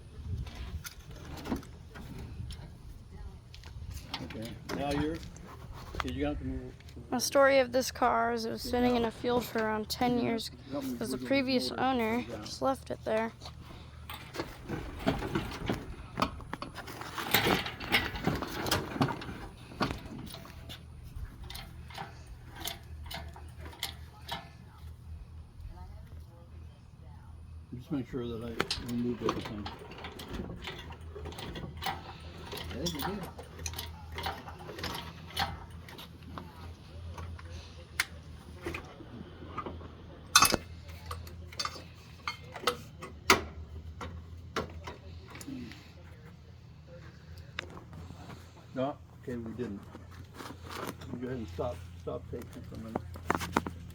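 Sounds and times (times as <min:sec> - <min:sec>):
steady low hum: 0:00.0 - 0:53.9
metallic clicks and clanks: 0:13.1 - 0:25.0, 0:28.5 - 0:38.9, 0:39.5 - 0:45.5.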